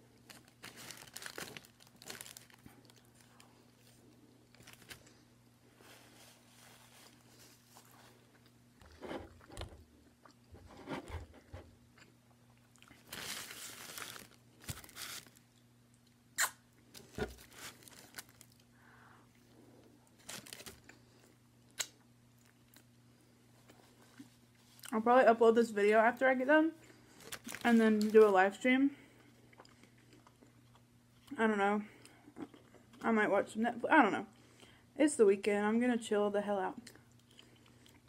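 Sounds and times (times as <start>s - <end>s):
paper wrapper rustling: 0.2s - 5.2s, 13.0s - 15.4s, 16.9s - 18.6s, 20.2s - 20.9s, 27.1s - 28.4s
sharp mouth clicks: 16.4s - 16.6s.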